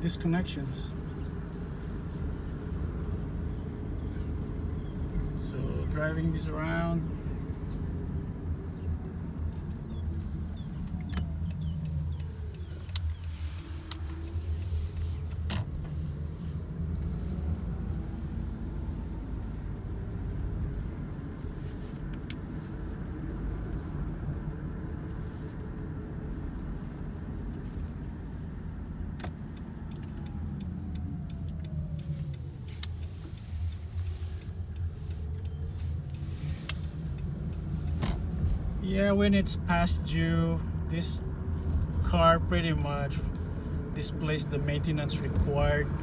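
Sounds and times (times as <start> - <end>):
faint drive whine: 0.0 - 46.0
tyre and road rumble: 0.0 - 46.0
light clicks: 9.4 - 15.8, 29.1 - 38.6.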